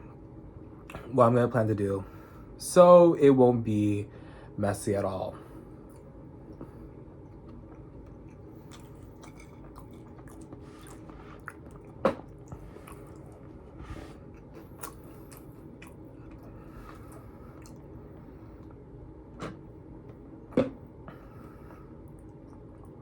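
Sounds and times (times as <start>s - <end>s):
chewing and mouth sounds: 5.9s - 19.7s.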